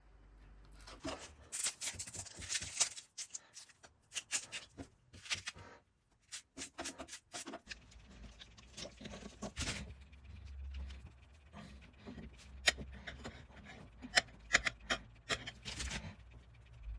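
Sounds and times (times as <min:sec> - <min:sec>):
hands handling cooking things: 0:00.8 - 0:10.0.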